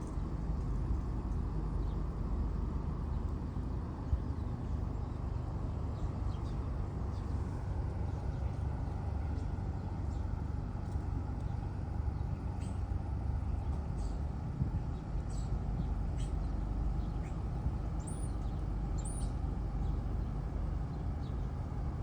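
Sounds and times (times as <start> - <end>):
faint high bird chirps: 15.3 - 20.0.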